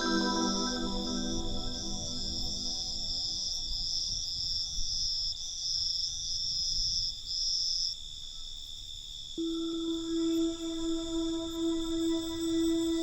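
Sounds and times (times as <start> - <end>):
low held note: 0.0 - 3.5, 9.4 - 13.0
soft ambient music: 0.0 - 4.0, 9.4 - 13.0
higher pulsing cricket trill: 0.0 - 13.0
steady high cricket trill: 0.0 - 13.0.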